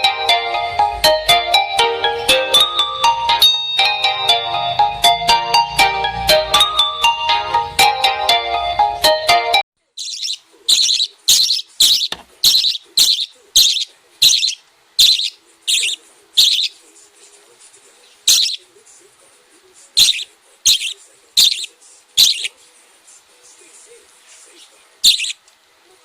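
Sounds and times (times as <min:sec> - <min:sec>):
bird chirping: 0:10.0 - 0:16.8, 0:18.0 - 0:18.7, 0:20.0 - 0:22.6, 0:24.5 - 0:25.4.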